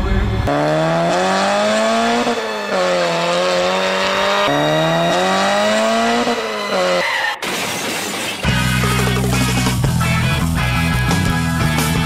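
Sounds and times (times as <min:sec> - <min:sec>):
car engine revving hard: 0:00.2 - 0:07.0
loud rock music: 0:08.4 - 0:12.0.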